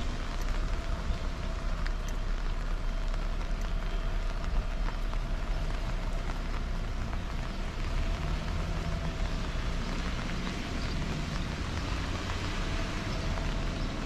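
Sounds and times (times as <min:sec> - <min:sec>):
rain drops ticking: 0:00.0 - 0:14.0.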